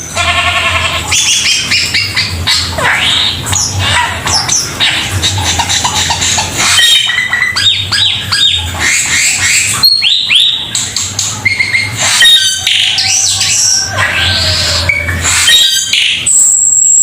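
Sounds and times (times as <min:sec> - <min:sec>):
bird squawking calls: 0:00.0 - 0:17.0
steady low hum: 0:00.0 - 0:17.0
bird singing whistled notes: 0:09.2 - 0:10.6, 0:11.4 - 0:13.8, 0:14.9 - 0:17.0.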